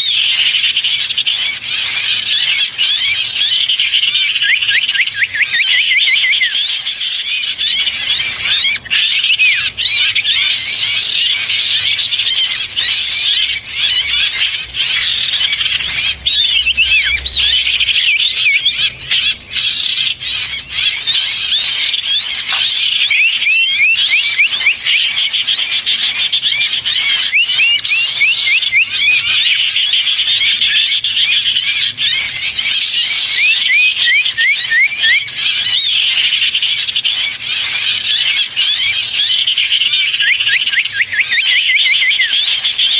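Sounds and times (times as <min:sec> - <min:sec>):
songbirds chattering and twittering: 0:00.0 - 0:42.9.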